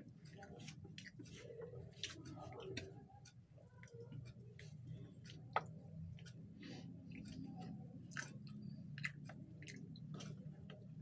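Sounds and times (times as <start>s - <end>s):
person chewing food: 0.4s - 3.0s, 3.8s - 11.0s
mouth clicks and smacks: 8.1s - 10.8s.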